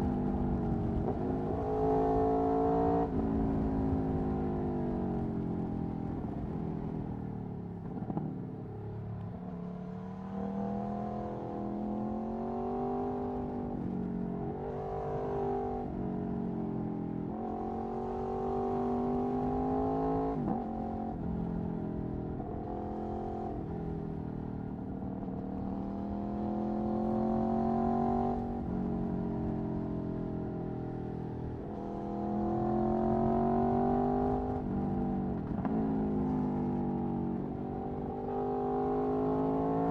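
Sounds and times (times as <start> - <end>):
motorcycle engine accelerating: 10.1 - 39.9.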